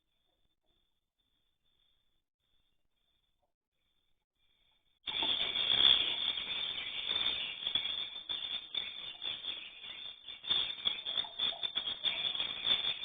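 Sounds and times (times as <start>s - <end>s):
swiftlets chittering: 5.1s - 13.0s.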